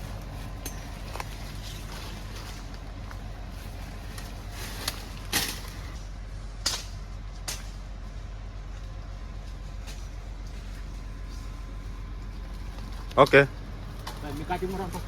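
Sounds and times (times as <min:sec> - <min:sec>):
diesel engine droning: 0:00.0 - 0:15.0
sharp metallic clanks: 0:00.6 - 0:01.8, 0:04.7 - 0:06.0, 0:06.6 - 0:07.8.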